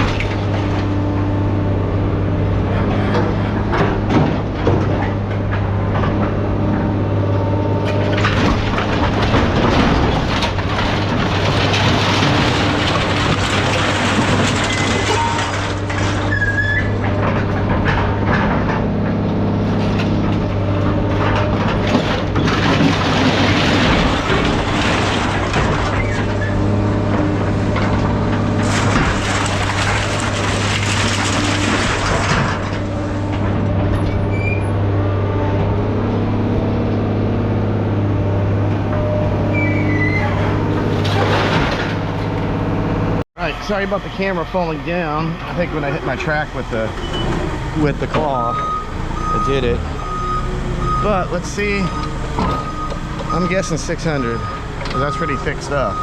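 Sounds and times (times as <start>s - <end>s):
machine engine droning: 0.0s - 55.8s
scrap metal grinding and clattering: 0.0s - 56.0s.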